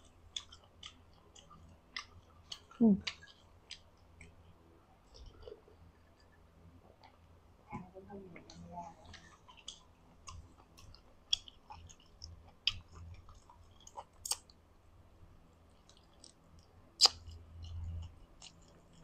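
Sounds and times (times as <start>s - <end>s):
chewing chicken and bones: 0.0s - 7.3s, 8.4s - 14.6s, 15.5s - 19.0s
wet clicks and crunches: 15.8s - 19.0s.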